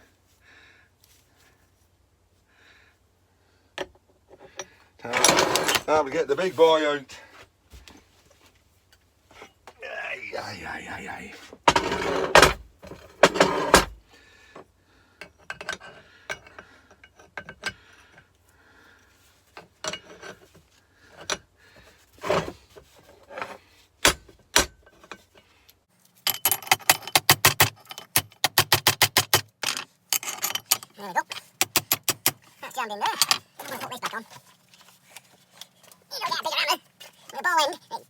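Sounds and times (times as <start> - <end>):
metallic clinks and knocks: 26.2 - 33.6.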